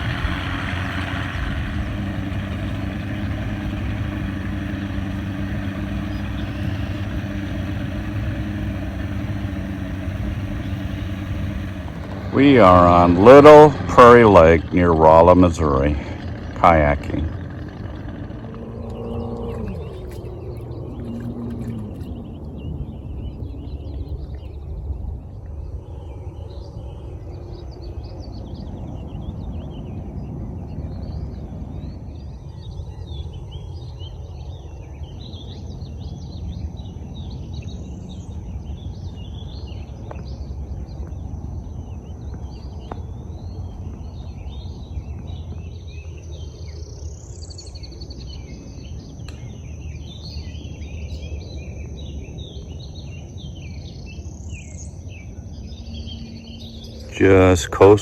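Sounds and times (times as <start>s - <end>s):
birds chirping and singing: 0.0s - 24.6s
low rumble: 0.0s - 26.0s.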